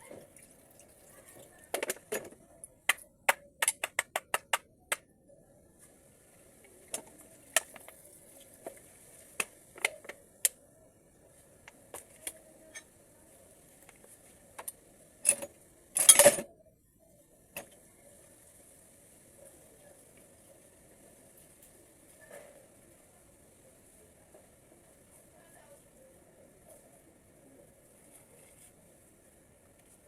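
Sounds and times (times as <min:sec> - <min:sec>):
small metal parts clinking: 0:15.2 - 0:16.5
metal parts clattering: 0:16.0 - 0:16.5.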